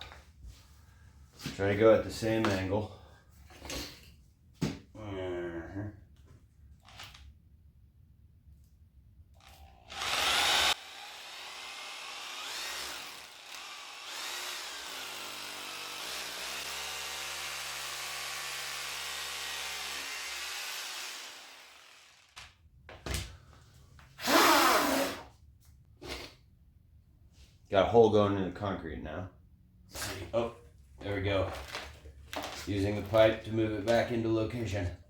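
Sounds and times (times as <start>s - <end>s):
electric drill boring into concrete: 9.6s - 22.5s, 24.2s - 25.2s.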